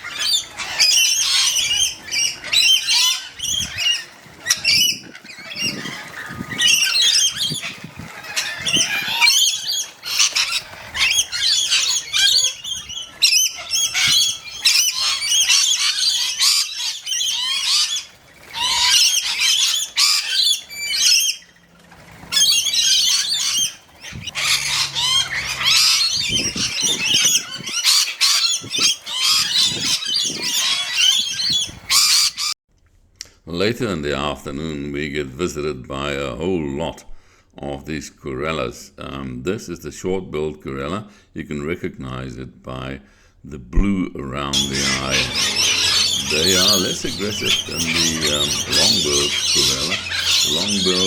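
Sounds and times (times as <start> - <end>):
parrots screeching and chattering: 0.0 - 32.6, 44.4 - 51.0.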